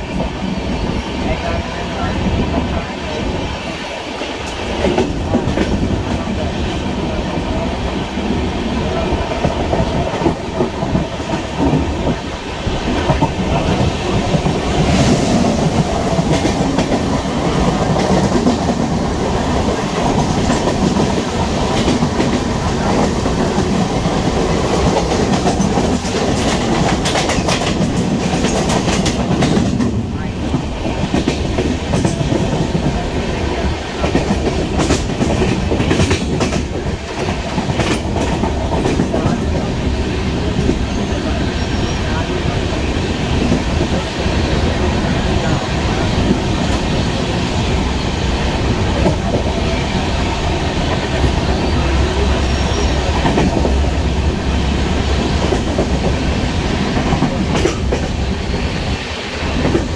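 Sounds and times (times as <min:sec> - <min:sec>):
train coach rumble: 0:00.0 - 0:59.9.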